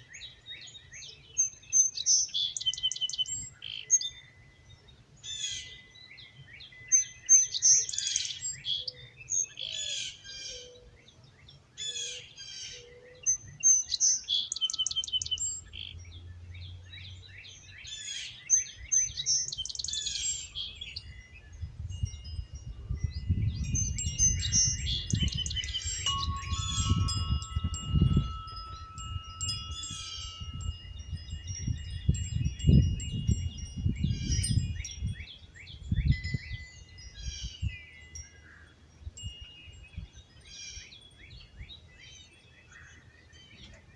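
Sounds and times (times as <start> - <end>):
wind chimes ringing: 0.0 - 10.8, 12.8 - 43.9
songbirds chirping: 0.0 - 43.9
low wind rumble: 20.5 - 37.8.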